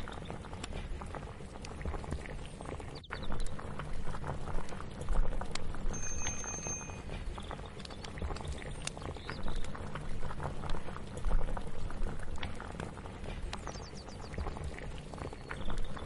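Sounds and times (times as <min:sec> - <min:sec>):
pot bubbling on the boil: 0:00.0 - 0:16.0
faint high tone: 0:05.9 - 0:07.1.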